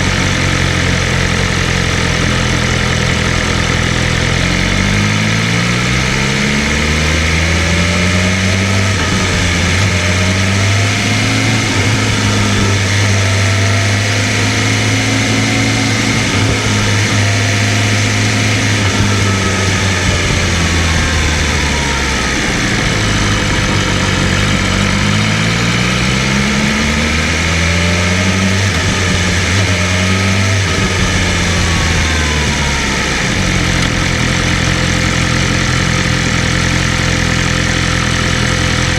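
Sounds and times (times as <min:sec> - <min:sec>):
motorcycle engine revving: 0:00.0 - 0:38.9
steady rushing noise: 0:07.1 - 0:36.6.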